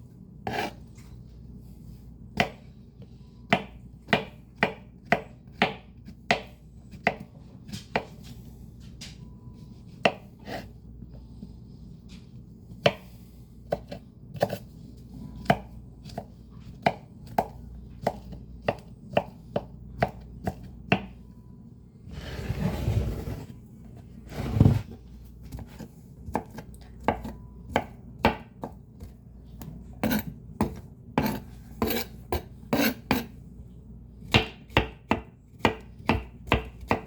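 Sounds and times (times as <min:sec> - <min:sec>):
knife chopping greens: 0:00.4 - 0:00.8, 0:02.3 - 0:02.7, 0:03.5 - 0:08.4, 0:09.5 - 0:10.7, 0:12.7 - 0:21.2, 0:25.4 - 0:33.3, 0:34.2 - 0:37.0.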